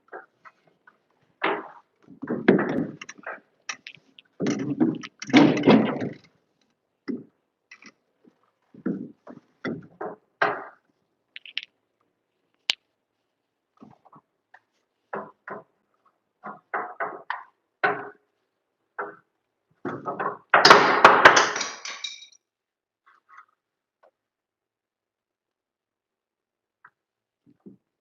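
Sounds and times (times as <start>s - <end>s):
knocks and scrapes of handling tools: 0.0s - 11.7s, 13.8s - 18.4s.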